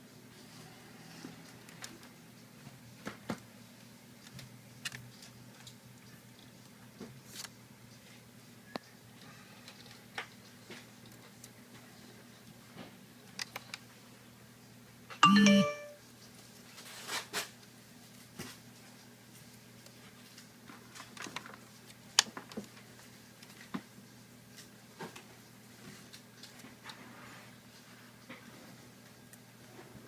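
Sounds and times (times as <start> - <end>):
chime-like tone: 15.2 - 16.0.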